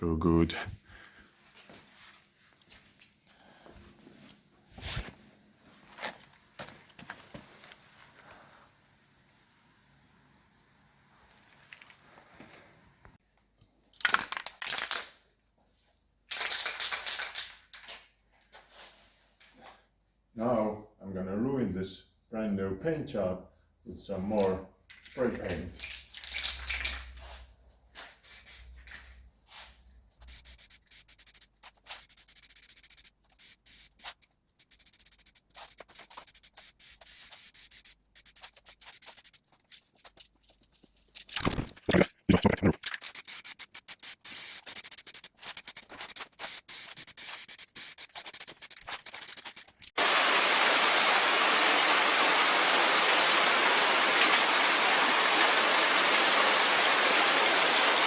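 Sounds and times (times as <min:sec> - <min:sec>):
spray-paint can hissing: 0:28.2 - 0:29.0, 0:30.2 - 0:39.6, 0:42.4 - 0:49.9.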